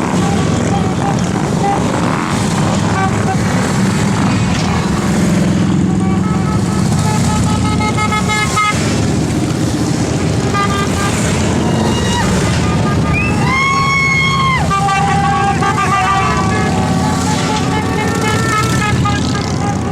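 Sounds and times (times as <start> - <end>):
motorcycle engines running: 0.0 - 19.9.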